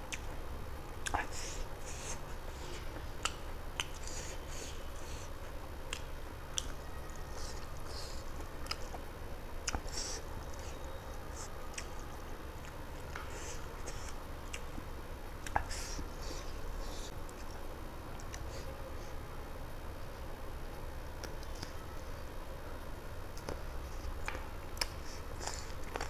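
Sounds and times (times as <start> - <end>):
steady low hum: 0.0 - 26.0
person chewing and lip smacking: 0.1 - 0.4, 1.0 - 14.8, 15.4 - 18.7, 23.3 - 26.0.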